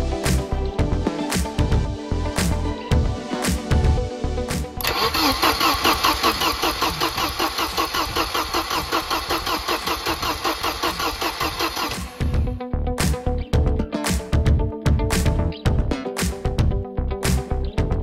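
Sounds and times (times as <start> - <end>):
background music: 0.0 - 18.0
car engine cranking on starter: 4.8 - 12.4.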